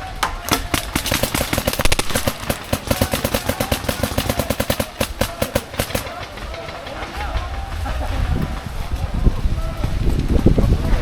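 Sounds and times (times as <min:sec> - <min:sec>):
paintball marker firing rapidly: 0:00.5 - 0:06.9.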